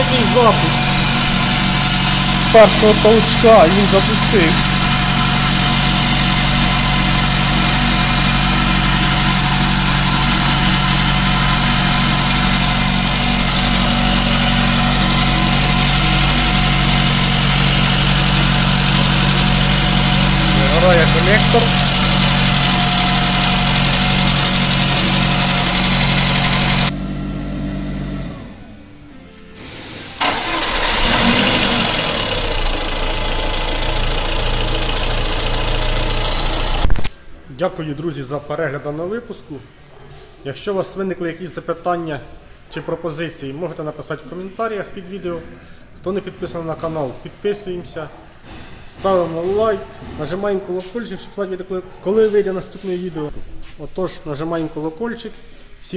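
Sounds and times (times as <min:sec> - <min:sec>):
car engine idling: 0:00.0 - 0:29.0, 0:30.2 - 0:36.9.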